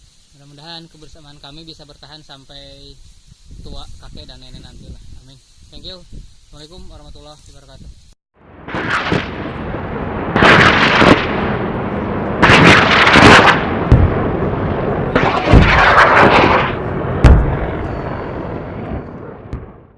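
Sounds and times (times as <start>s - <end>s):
heavy low thumps: 9.4s - 19.7s.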